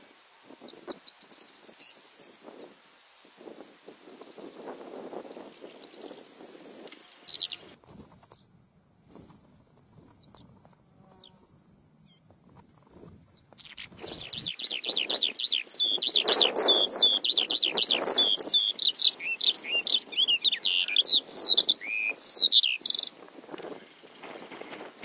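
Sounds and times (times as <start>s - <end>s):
lark chirping: 1.0s - 2.4s, 5.8s - 8.4s, 13.3s - 23.2s
faint rustling: 6.8s - 11.6s, 12.2s - 14.5s.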